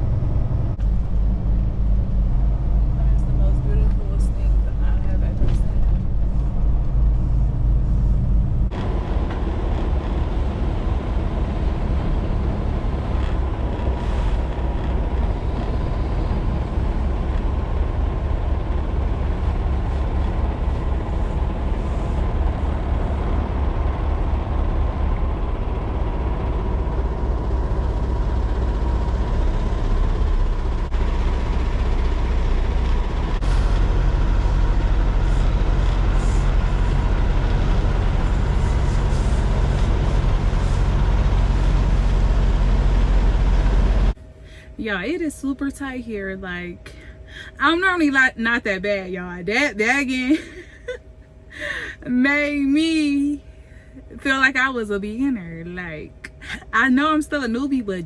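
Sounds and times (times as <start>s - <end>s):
diesel truck engine rumble: 0.0s - 58.0s
faint steady whine: 30.1s - 58.0s.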